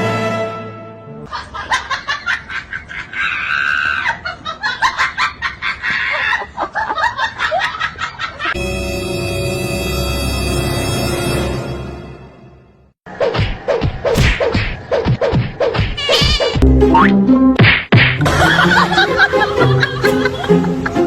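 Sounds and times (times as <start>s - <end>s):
background music: 0.0s - 1.3s, 8.6s - 12.9s, 16.6s - 17.6s, 18.2s - 21.0s.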